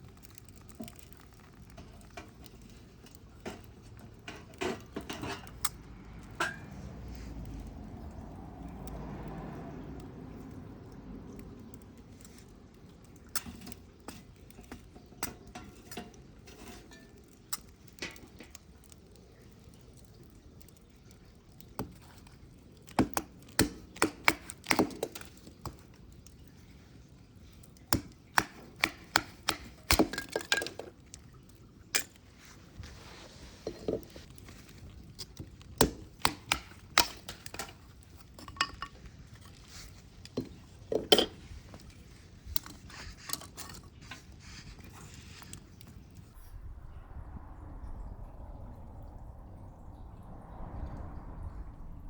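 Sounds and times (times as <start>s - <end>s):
hard objects knocking and clinking: 40.3s - 41.8s.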